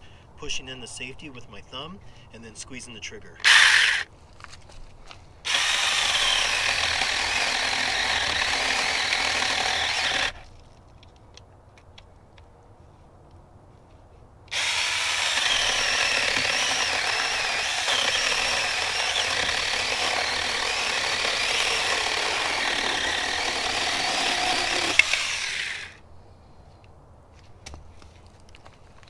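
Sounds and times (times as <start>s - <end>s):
electric mini chainsaw running: 3.4s - 4.1s, 5.5s - 10.4s, 14.5s - 26.0s.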